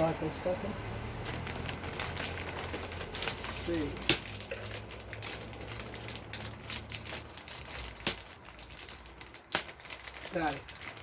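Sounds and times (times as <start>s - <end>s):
packaging crinkling and rustling: 1.2s - 11.0s.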